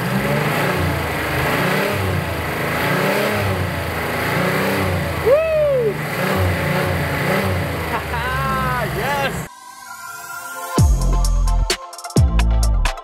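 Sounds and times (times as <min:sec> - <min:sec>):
car engine revving: 0:00.0 - 0:09.5.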